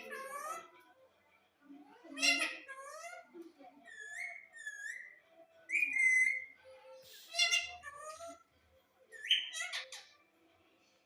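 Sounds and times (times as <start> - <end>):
parakeet shrill calls: 2.1 - 8.5, 9.1 - 10.2.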